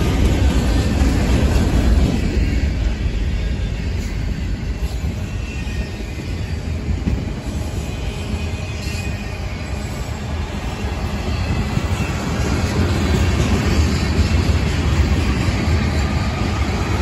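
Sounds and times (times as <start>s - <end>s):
freight train wheels rumbling: 0.0s - 17.0s
faint wheel squeal: 3.7s - 10.3s.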